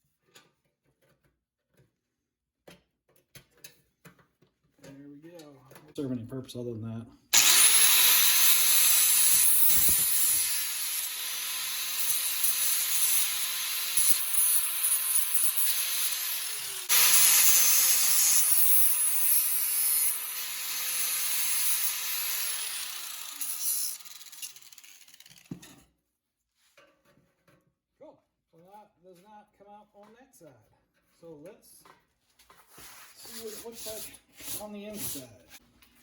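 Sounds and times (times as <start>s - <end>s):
power tool cutting metal: 7.4s - 25.6s.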